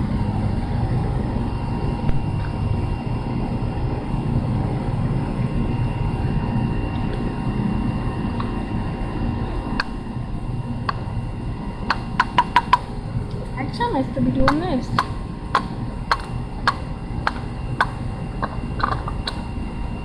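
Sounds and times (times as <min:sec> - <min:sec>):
low outdoor rumble: 0:00.0 - 0:20.0
sharp clicks: 0:14.5 - 0:19.4.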